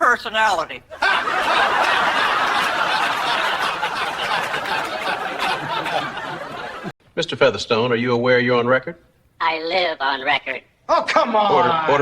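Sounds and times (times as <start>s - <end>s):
crowd laughing: 0.9s - 7.0s.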